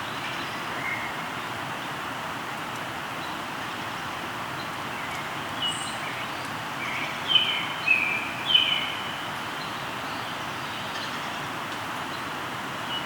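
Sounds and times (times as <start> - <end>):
river flowing: 0.0 - 13.0
songbird whistled calls: 5.0 - 11.2.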